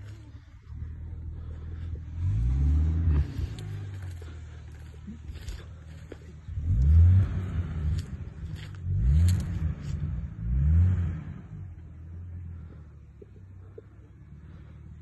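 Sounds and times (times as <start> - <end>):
engine revving hard: 1.5 - 4.9, 6.5 - 11.8.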